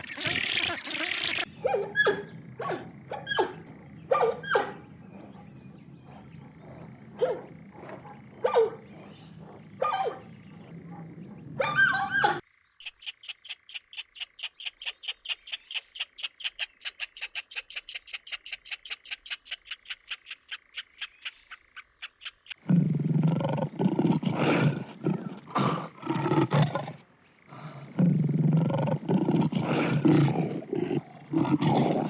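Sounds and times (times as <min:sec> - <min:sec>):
rapid high chirps: 0:12.8 - 0:22.6
lion roaring: 0:22.6 - 0:32.0.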